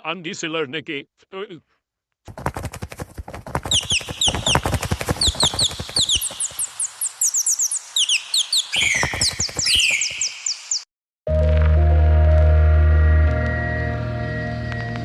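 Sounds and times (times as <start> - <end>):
loud falling bird calls: 2.3 - 10.9
small birds chirping: 3.6 - 10.9.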